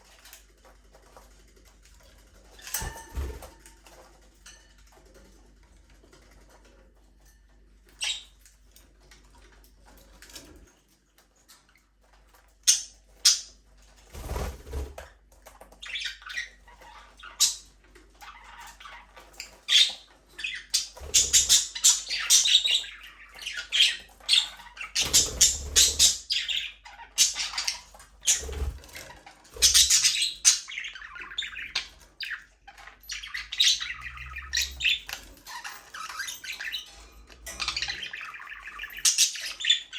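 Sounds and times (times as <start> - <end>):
budgerigars chirping and squawking: 2.6 - 3.6, 8.0 - 8.4, 12.6 - 15.0, 15.7 - 39.9.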